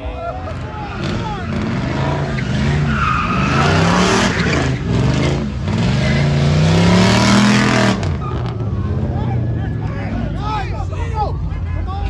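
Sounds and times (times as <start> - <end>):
car engine revving: 0.0 - 12.0
tyres squealing and skidding: 0.0 - 12.0.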